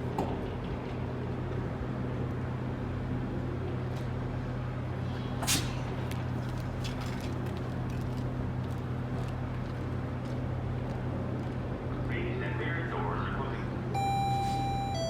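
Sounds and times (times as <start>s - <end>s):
diesel train humming: 11.9s - 15.0s.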